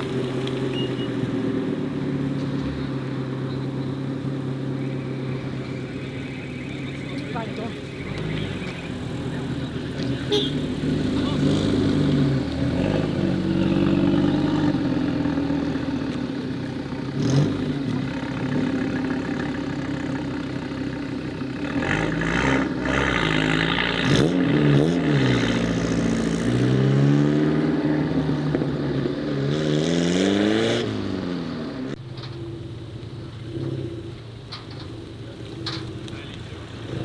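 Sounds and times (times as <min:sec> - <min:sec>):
sharp crack: 0:00.0 - 0:01.6, 0:32.0 - 0:37.0
car engines revving: 0:00.0 - 0:37.0.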